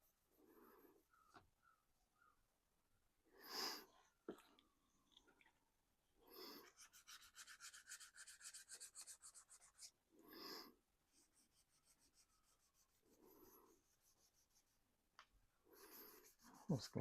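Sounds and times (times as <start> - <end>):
rubbing strokes on plastic: 6.4 - 10.0, 11.1 - 14.9, 15.8 - 17.0.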